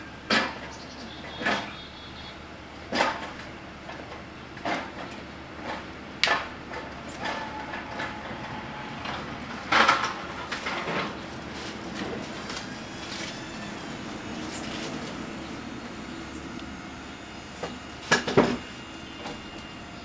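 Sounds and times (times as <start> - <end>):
sharp knocks and clanks: 9.0 - 19.8.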